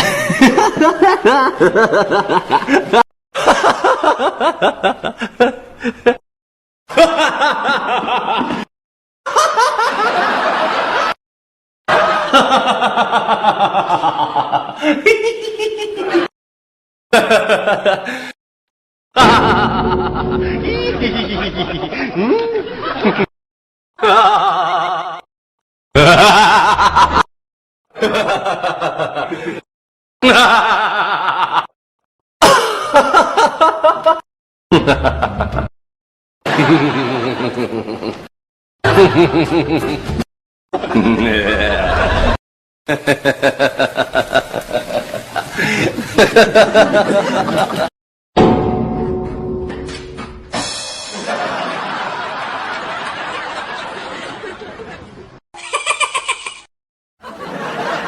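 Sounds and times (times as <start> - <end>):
person laughing: 0.0 - 6.2, 12.2 - 16.3, 17.2 - 18.4, 19.2 - 23.3, 24.0 - 25.2, 26.0 - 27.2, 30.2 - 31.7, 32.4 - 35.7, 38.9 - 40.1, 40.8 - 42.3, 42.9 - 47.9, 55.6 - 58.0.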